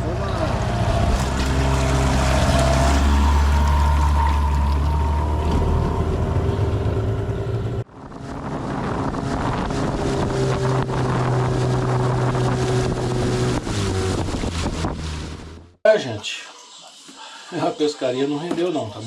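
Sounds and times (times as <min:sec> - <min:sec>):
outboard motor running: 0:00.0 - 0:15.8
wind on microphone: 0:07.9 - 0:15.4.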